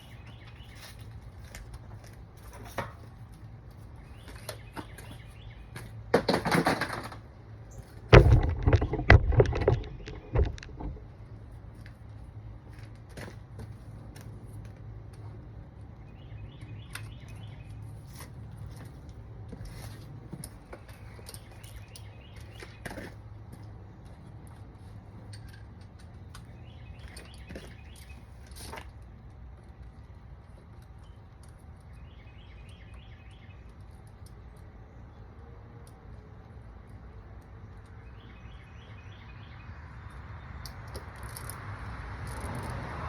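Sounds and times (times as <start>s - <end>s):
loud knocks and rattles: 8.1s - 11.0s.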